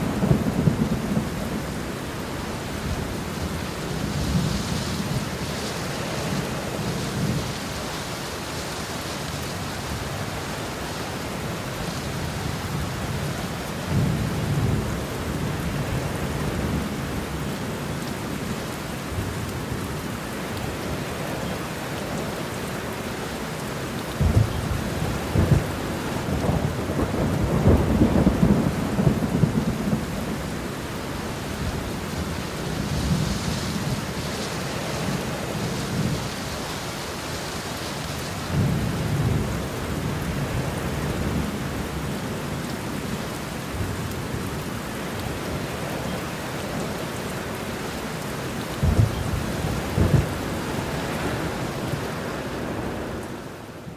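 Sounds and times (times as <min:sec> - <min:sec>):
steady rain: 0:00.0 - 0:53.9
rolling thunder: 0:24.2 - 0:30.6, 0:48.7 - 0:52.0.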